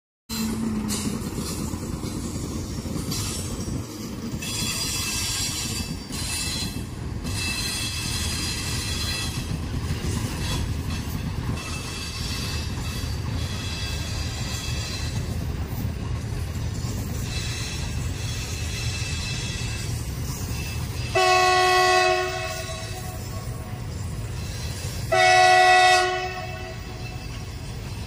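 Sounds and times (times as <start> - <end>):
wheel squeal: 0.3 - 15.9, 16.7 - 21.2, 26.8 - 28.0
train wheels rumbling on rails: 0.3 - 28.0.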